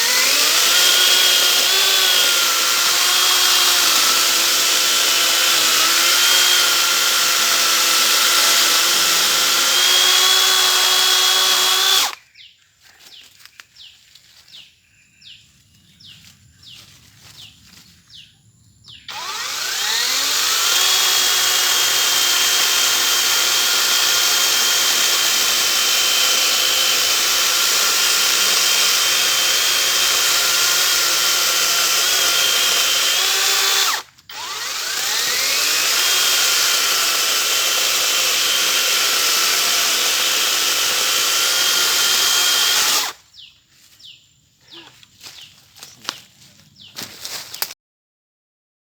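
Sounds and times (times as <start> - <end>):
electric chainsaw cutting wood: 0.0 - 12.2, 19.1 - 43.2.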